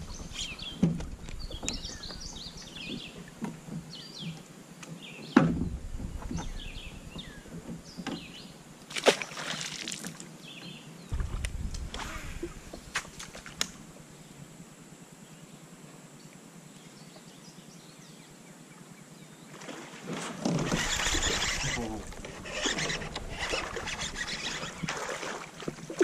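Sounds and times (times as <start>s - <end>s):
water sloshing against hull: 0.0s - 4.4s, 5.6s - 10.3s, 11.1s - 14.0s, 19.5s - 26.0s
knocks on a kayak: 5.3s - 6.6s.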